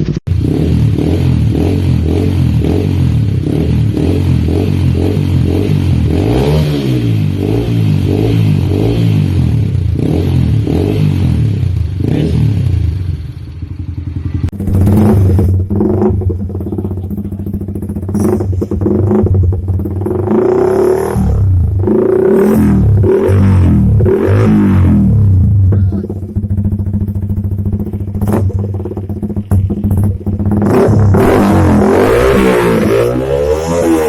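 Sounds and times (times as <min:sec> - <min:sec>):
motorcycle engine running loudly: 0:00.0 - 0:34.0.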